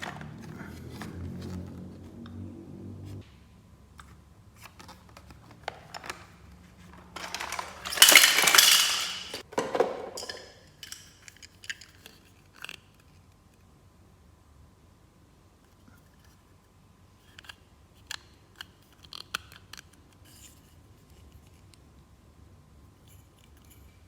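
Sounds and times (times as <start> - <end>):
packaging rustling: 4.6 - 9.5
plastic pieces clicking: 7.1 - 9.4.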